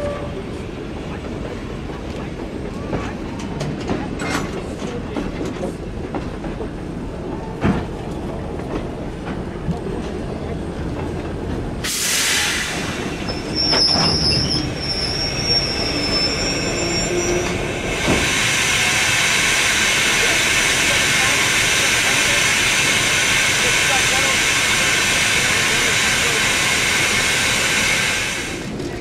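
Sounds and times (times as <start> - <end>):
train rumbling slowly: 0.0 - 29.0
loud hiss: 11.8 - 13.3, 17.9 - 28.6
high steady wheel squeal: 12.1 - 28.5.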